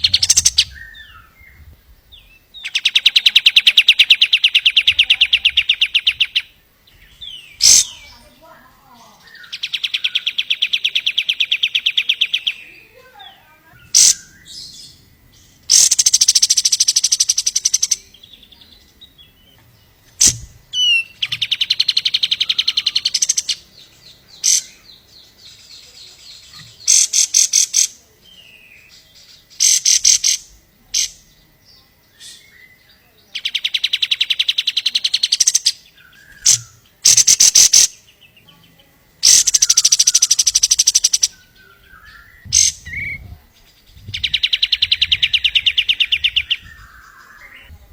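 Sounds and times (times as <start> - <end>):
bird short sharp calls: 0.0 - 6.6, 7.2 - 8.3, 9.2 - 15.0, 15.7 - 18.1, 20.2 - 23.6, 24.3 - 24.8, 39.2 - 43.3
bird chatter: 0.0 - 47.9
songbird trilling: 0.0 - 47.9.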